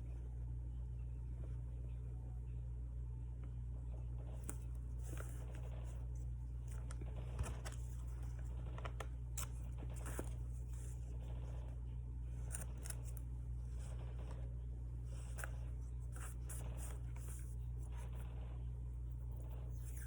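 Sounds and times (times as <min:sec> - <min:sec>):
steady low hum: 0:00.0 - 0:20.0
paper scraping: 0:04.4 - 0:20.0.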